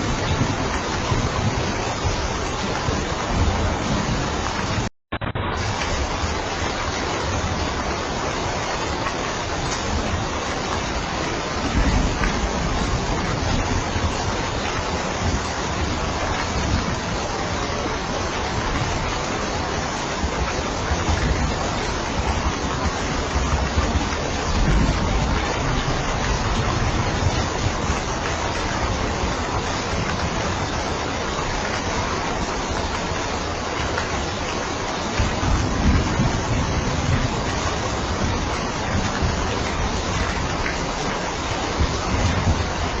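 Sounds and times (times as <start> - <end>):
heavy rain hiss: 0.0 - 43.0.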